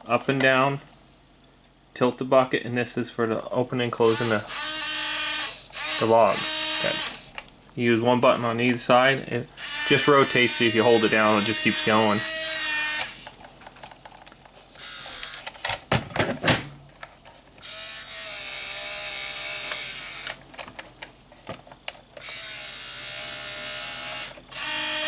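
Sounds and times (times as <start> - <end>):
small electric motors whining: 4.0 - 7.5, 9.6 - 13.4, 14.8 - 15.5, 17.6 - 20.4, 22.2 - 25.0.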